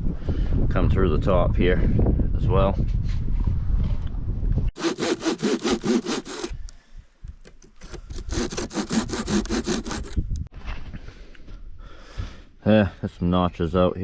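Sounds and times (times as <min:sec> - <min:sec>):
hand saw cutting wood: 0:04.8 - 0:06.6, 0:07.6 - 0:10.2.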